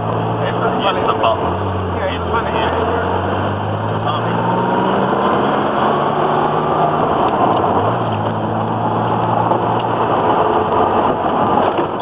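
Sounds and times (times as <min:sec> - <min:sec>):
car engine drone: 0:00.0 - 0:12.0
road noise: 0:00.0 - 0:12.0.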